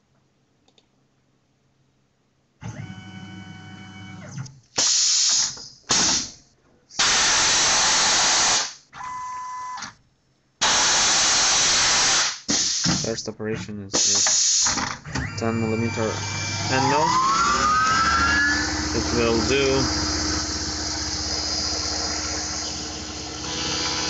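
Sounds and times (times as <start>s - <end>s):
machine whine with low hum: 2.7s - 4.6s, 15.0s - 24.0s
loud hissing spray bursts: 7.0s - 8.8s, 10.6s - 13.1s.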